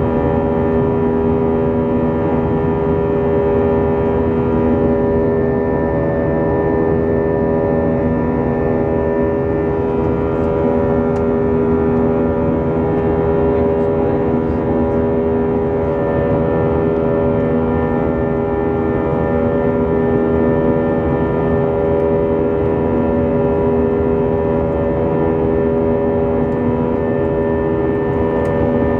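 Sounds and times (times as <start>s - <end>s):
jet engines heard from cabin: 0.0s - 28.9s.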